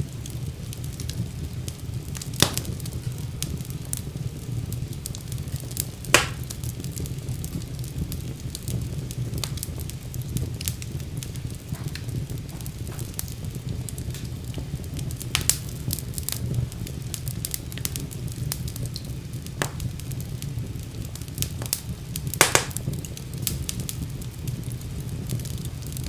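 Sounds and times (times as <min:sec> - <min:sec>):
fire crackles and pops: 0:00.0 - 0:26.0
low rumble of flames: 0:00.0 - 0:26.0.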